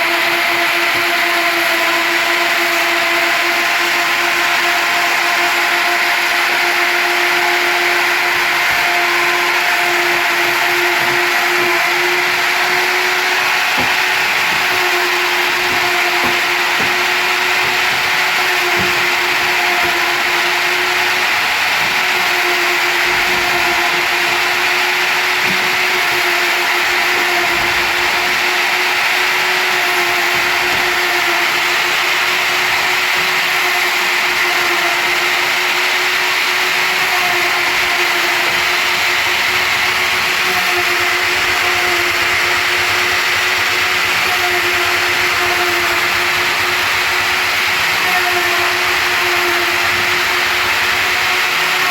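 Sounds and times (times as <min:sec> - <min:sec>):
router spindle cutting wood: 0:00.0 - 0:51.9.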